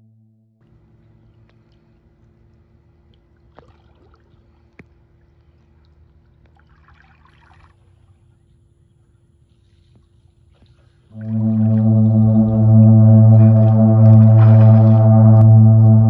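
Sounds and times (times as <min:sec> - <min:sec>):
low steady hum: 0:00.0 - 0:16.0
pool water lapping: 0:00.7 - 0:15.6
water splashing: 0:01.2 - 0:04.8, 0:05.4 - 0:08.1, 0:10.7 - 0:15.4.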